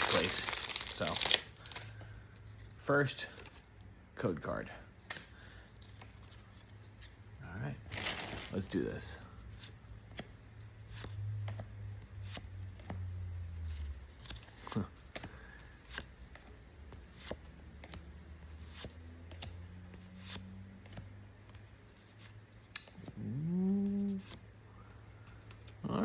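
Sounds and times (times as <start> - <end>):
faint low hum: 9.2 - 26.0
cards clicking and scraping: 13.6 - 23.2.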